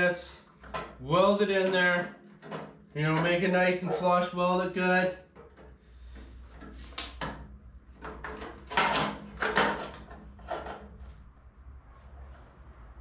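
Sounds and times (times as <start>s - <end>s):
metal pieces clanking and scraping: 8.0s - 11.0s.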